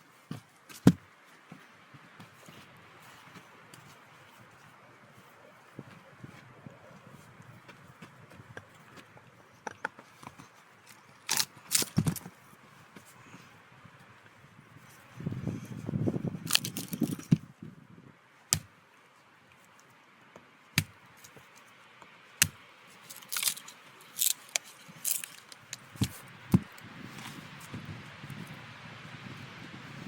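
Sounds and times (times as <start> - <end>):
gear rustling: 16.5 - 17.3, 23.0 - 27.4.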